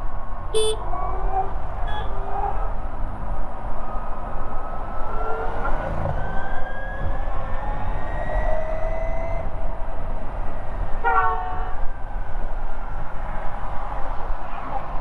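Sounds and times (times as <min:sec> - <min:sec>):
vehicle horn honking: 0:00.6 - 0:00.8.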